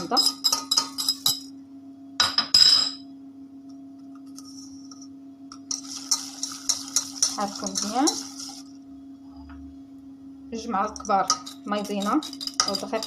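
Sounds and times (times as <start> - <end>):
steady low hum: 0.0 - 13.0
utensil scraping a mixing bowl: 5.7 - 8.8, 11.0 - 13.0.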